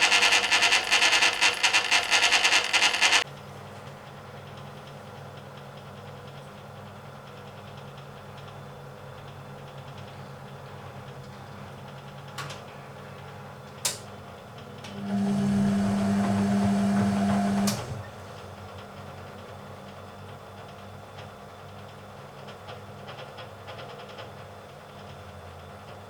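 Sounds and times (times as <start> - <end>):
washing machine clicks: 13.8 - 14.1, 14.9 - 18.4
washing machine drum motor hum: 13.9 - 19.2.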